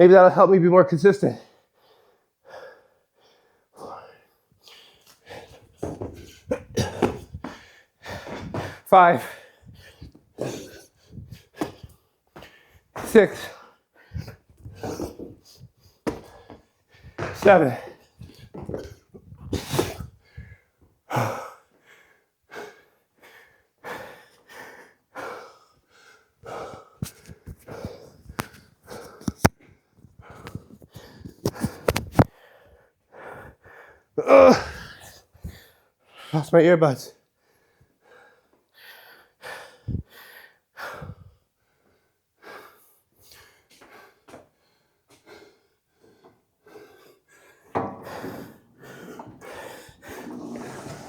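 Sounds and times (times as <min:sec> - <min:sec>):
man breathing heavily: 0:01.5 - 0:29.4, 0:30.2 - 0:36.3, 0:37.4 - 0:50.6
dull thump: 0:47.7 - 0:50.7.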